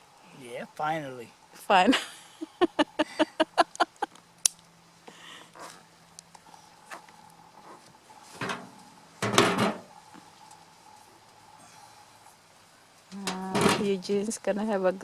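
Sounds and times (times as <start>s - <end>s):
scraping and rustling handling: 5.5s - 11.1s
faint ticks: 6.1s - 7.4s.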